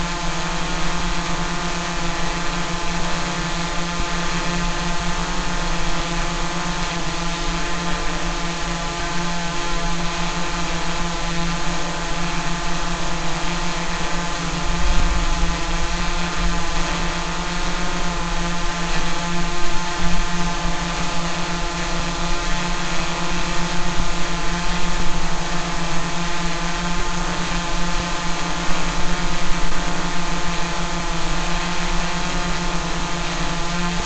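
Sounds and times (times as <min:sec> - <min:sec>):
drone propellers buzzing: 0:00.0 - 0:34.0.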